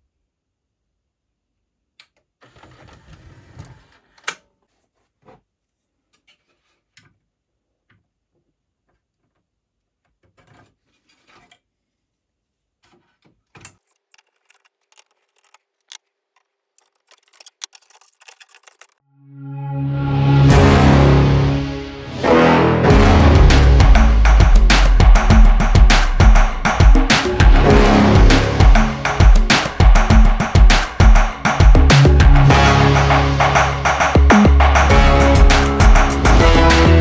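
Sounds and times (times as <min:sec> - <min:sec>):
rustling: 0:12.9 - 0:19.0
clicks and knocks of repair work: 0:13.6 - 0:16.0, 0:16.8 - 0:19.0
loud music: 0:19.5 - 0:37.0.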